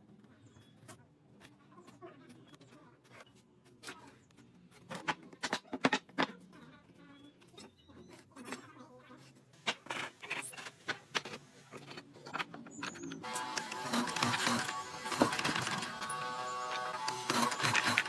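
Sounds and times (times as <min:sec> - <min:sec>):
wooden pieces and tools knocking: 0:05.0 - 0:06.3, 0:09.7 - 0:18.0.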